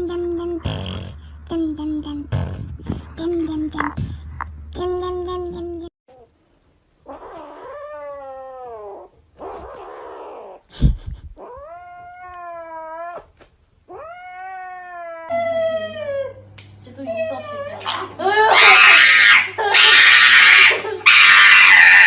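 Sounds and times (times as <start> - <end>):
cat yowling: 7.1 - 10.6, 13.9 - 16.4, 17.3 - 22.0.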